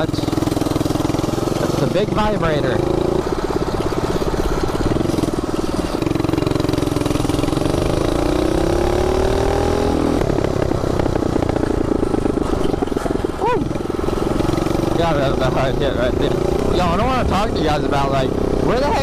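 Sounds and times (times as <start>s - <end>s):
minibike engine running: 0.0s - 19.0s.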